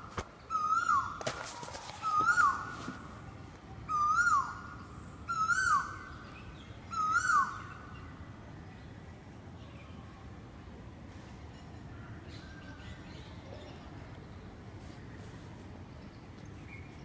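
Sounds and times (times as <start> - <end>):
bird whistled call: 0.5 - 1.2, 2.0 - 2.8, 3.9 - 4.7, 5.3 - 6.1, 6.9 - 7.6.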